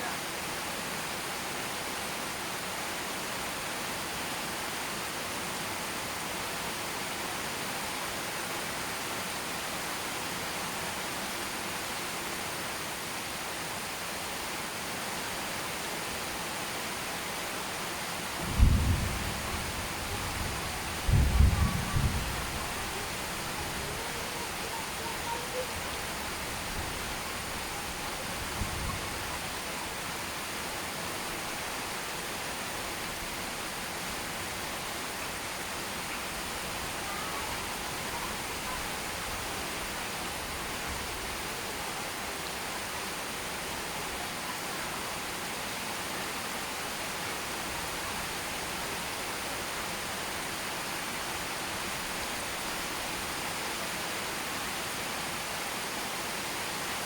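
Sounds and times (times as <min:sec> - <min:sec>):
heavy rain hissing: 0:12.4 - 0:57.0.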